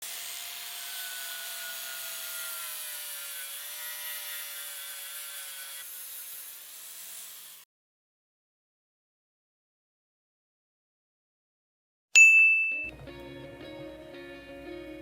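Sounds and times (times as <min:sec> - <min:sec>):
angle grinder whining: 0:00.0 - 0:07.6
grinding hiss: 0:05.5 - 0:07.6.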